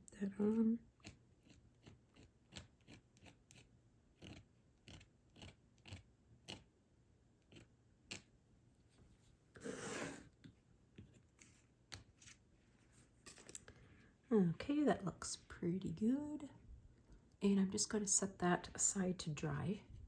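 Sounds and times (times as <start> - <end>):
palette knife scraping stencil: 0.5 - 6.7.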